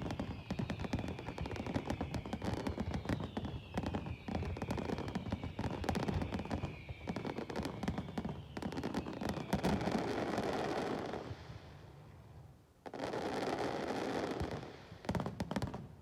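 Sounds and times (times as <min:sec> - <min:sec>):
firework whistle descending: 0:00.0 - 0:10.1
fireworks exploding: 0:00.0 - 0:12.1, 0:12.8 - 0:16.0.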